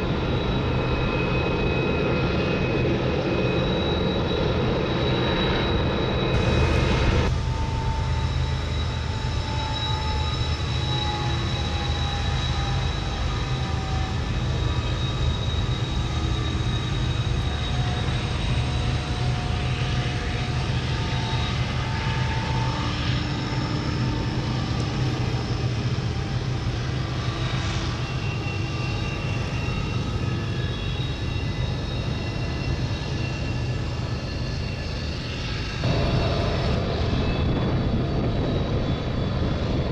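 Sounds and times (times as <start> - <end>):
engine drone: 0.0 - 39.9
faint whining tones: 0.0 - 39.9
rushing noise: 6.3 - 10.1, 35.8 - 39.9.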